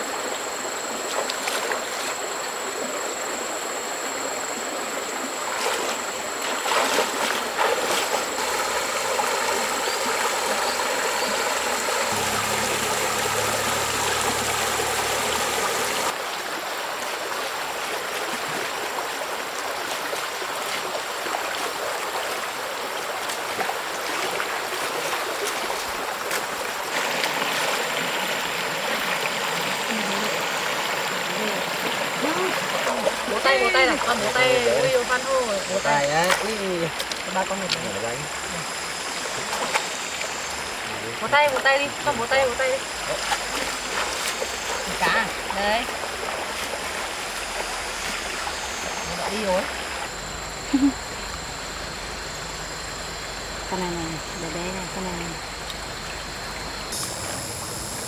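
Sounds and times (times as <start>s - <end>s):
stream rushing over rocks: 4.8s - 50.3s
thin high steady tone: 9.8s - 16.1s.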